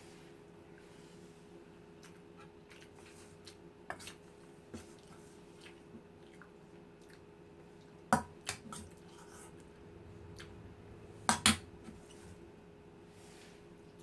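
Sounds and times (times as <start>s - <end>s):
faint steady hum: 0.0s - 14.0s
person chewing food: 1.9s - 4.3s, 5.0s - 10.6s.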